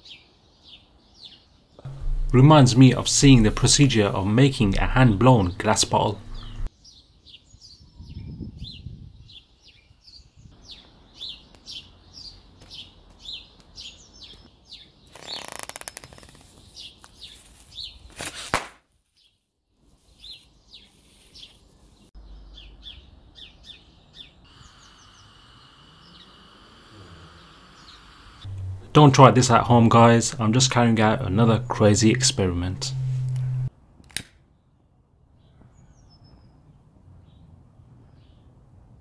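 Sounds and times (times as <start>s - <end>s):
birds chirping: 0.6s - 7.9s, 22.2s - 33.7s.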